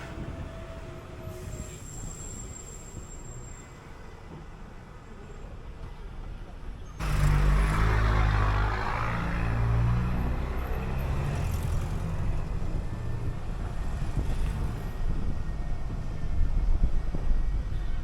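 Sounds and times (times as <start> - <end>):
bus engine pulling away: 0.0 - 18.0
low road rumble: 4.1 - 18.0.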